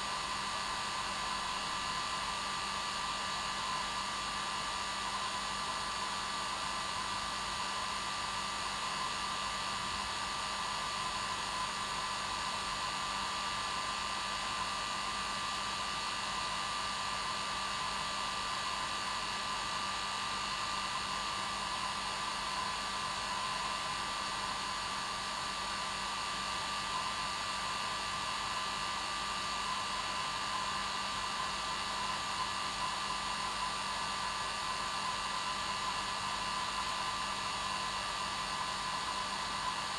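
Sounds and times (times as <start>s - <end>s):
hair dryer running: 16.4s - 39.9s.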